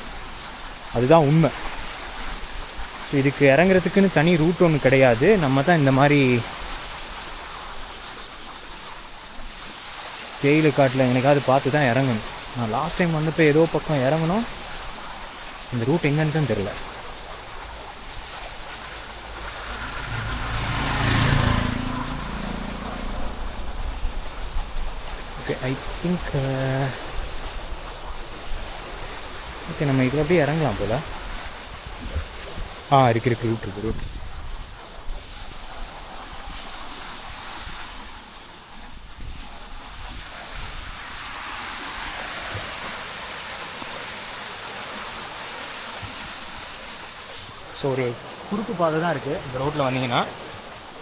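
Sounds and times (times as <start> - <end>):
rushing water: 0.0 - 51.0
vehicle engine passing by: 15.8 - 27.5.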